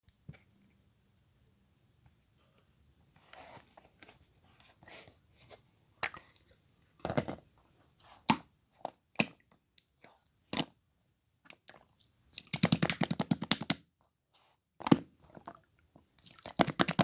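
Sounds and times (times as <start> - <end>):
slime squishing by hand: 16.2 - 17.0.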